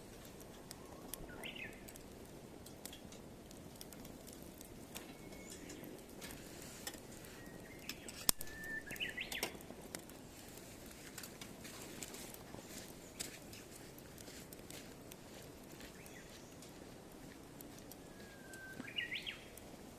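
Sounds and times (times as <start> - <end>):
fire popping: 0.0 - 19.9
wood fire crackling: 0.0 - 19.9
birds chirping: 0.7 - 2.0, 4.8 - 6.2, 7.0 - 9.6, 15.7 - 16.9, 17.9 - 19.6.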